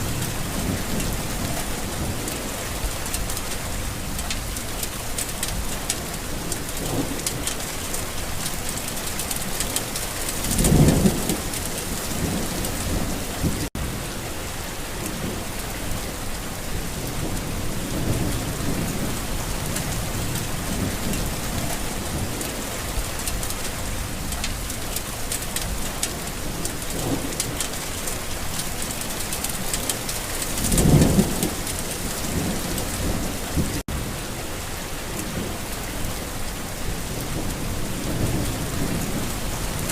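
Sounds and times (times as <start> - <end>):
thunder rolling: 0.0 - 4.6, 9.4 - 14.0, 29.5 - 34.3
rain falling on a garden: 0.0 - 39.9.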